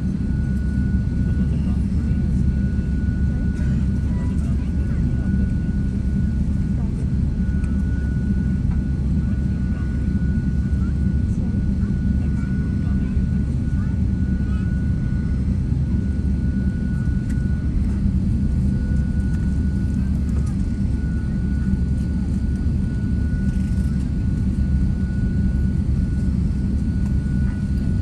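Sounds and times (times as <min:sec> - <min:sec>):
jet engines rumbling: 0:00.0 - 0:28.0.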